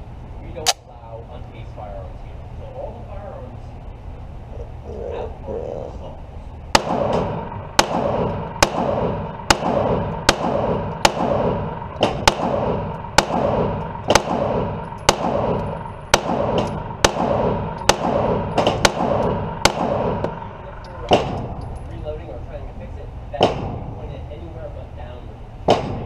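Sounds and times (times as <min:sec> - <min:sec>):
gunshots ringing out: 0:06.7 - 0:21.6, 0:23.4 - 0:23.9, 0:25.7 - 0:26.0.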